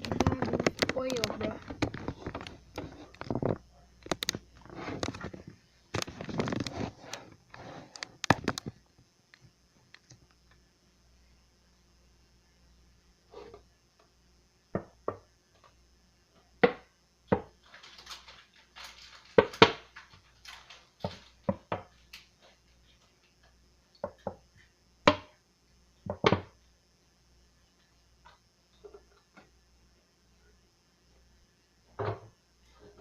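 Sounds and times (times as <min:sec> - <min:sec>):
objects knocking and clattering: 0:00.0 - 0:07.0, 0:16.6 - 0:22.0, 0:31.9 - 0:33.0.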